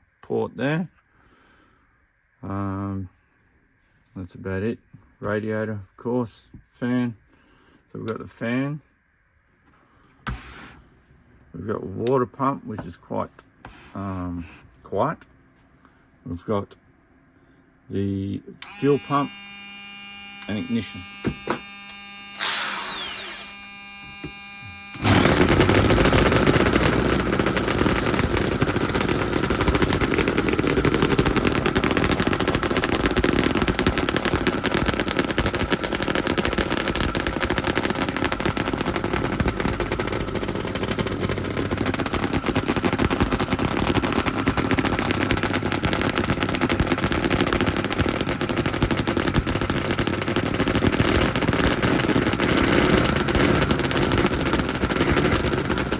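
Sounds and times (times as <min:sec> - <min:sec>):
model engine running: 0:18.6 - 0:55.9
fuel pump and fan hum: 0:20.2 - 0:55.9
brief whir: 0:21.6 - 0:26.7.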